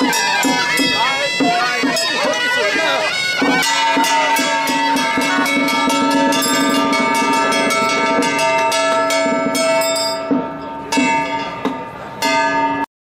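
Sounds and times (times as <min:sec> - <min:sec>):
reedy wind instrument: 0:00.0 - 0:11.0
ringing metal percussion: 0:00.0 - 0:12.9.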